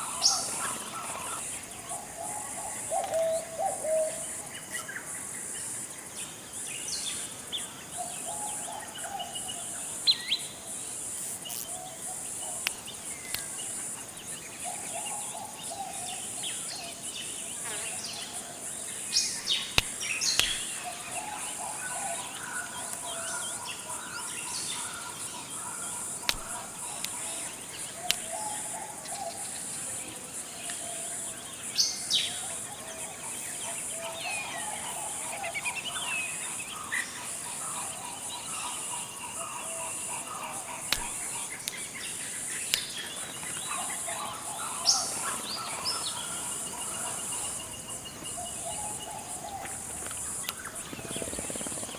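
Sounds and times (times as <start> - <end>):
insect chorus: 0.0 - 51.9
birds chirping: 11.3 - 30.2, 37.6 - 51.9.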